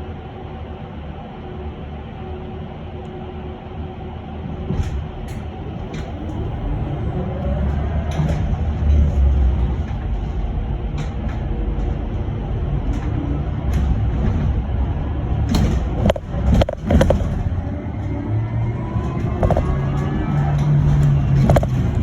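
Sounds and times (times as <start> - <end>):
bus road rumble and hum: 0.0 - 22.0
knocks and rattles: 7.6 - 22.0.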